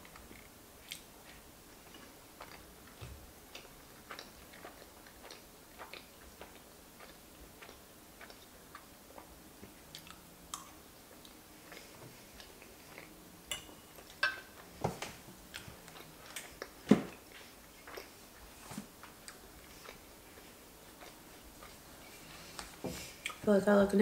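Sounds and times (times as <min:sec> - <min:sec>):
mouth chewing pasta: 0:00.0 - 0:23.4
fork clinking against pan: 0:13.5 - 0:14.5.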